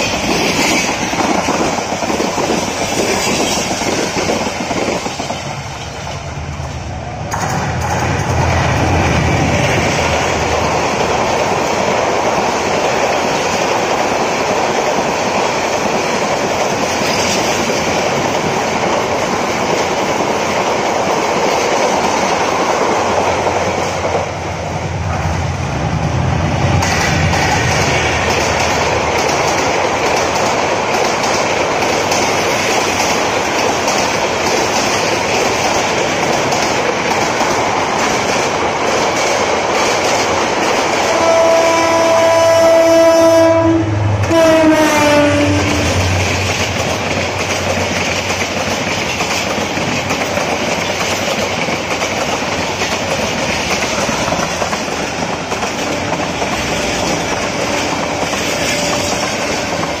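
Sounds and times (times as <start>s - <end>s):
train wheels clattering: 0.0s - 60.0s
locomotive horn: 41.0s - 46.3s.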